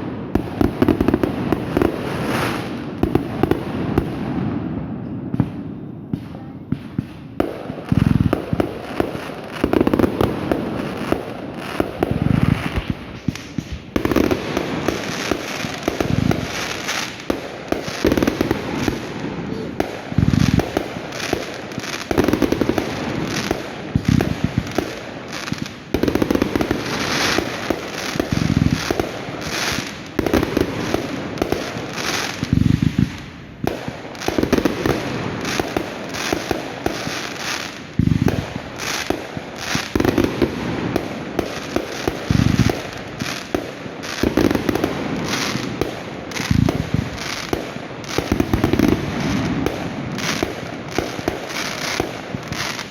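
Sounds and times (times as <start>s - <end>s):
fireworks bangs and crackling: 0.0s - 52.9s
heavy firework booms: 37.9s - 52.6s.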